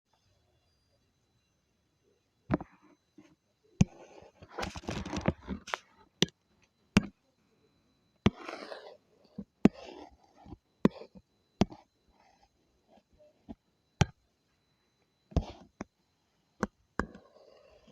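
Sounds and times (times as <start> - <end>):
pen scratching across surface: 2.6 - 5.9, 8.3 - 13.6, 15.3 - 15.9, 17.0 - 17.9
tool tapping: 10.4 - 11.8, 16.6 - 17.3.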